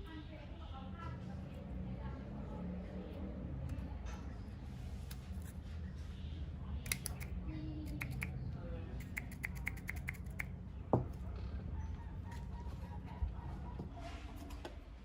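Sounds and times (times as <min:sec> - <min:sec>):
sharp light clicks: 0:06.8 - 0:07.3.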